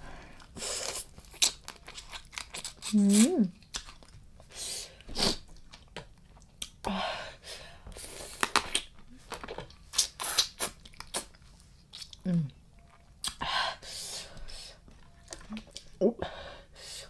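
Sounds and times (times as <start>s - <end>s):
wet chewing: 0.4s - 4.2s, 9.9s - 12.2s.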